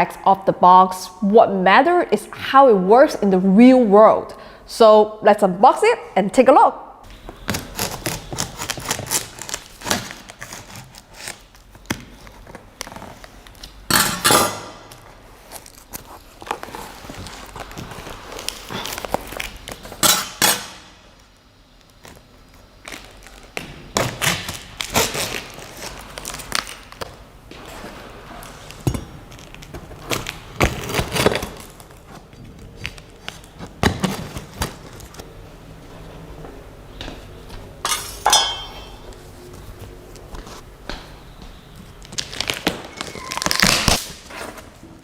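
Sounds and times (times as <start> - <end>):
packaging rustling: 7.1 - 13.8, 15.0 - 20.0, 22.0 - 35.3, 39.1 - 45.0.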